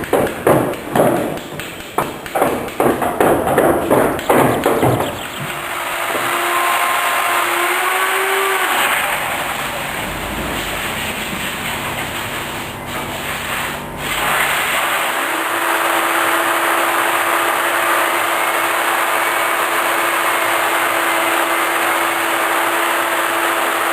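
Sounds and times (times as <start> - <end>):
hissing cutting noise: 0.0 - 15.1
woodworking machine humming: 0.0 - 23.9.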